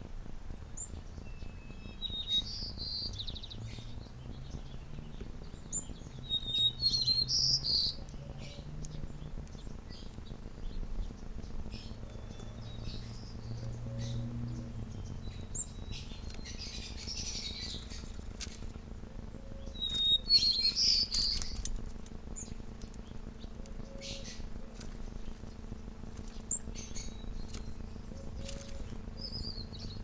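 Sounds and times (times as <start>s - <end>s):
small birds chirping: 0.0s - 30.0s
steady low hum: 0.0s - 30.0s
birds chattering harshly: 0.5s - 30.0s.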